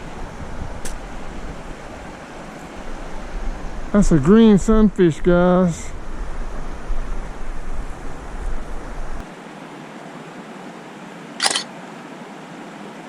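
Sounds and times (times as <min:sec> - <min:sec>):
wind rumble on microphone: 0:00.0 - 0:09.2
river water rushing: 0:09.3 - 0:13.0
camera shutter click: 0:11.4 - 0:11.7.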